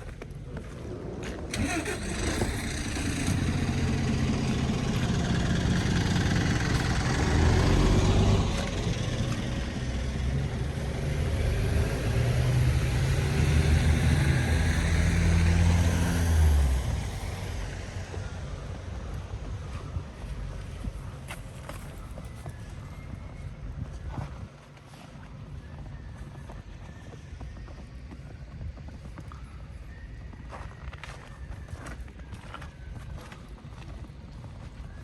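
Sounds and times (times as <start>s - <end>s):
large vehicle engine humming: 0.0s - 24.1s.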